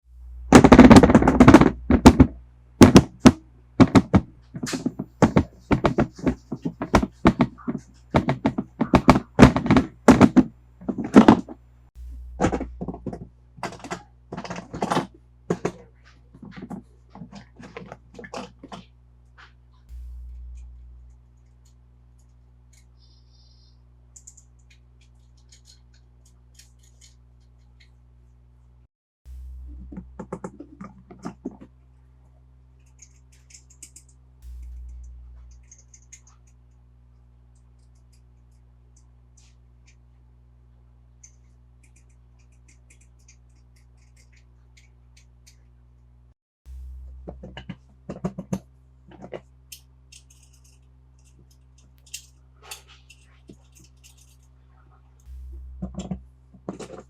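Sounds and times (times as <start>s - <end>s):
toy cars knocking and clacking: 12.4s - 18.9s, 24.2s - 28.0s, 32.8s - 34.2s, 35.4s - 36.7s, 41.2s - 45.7s, 47.3s - 54.5s, 55.9s - 57.0s.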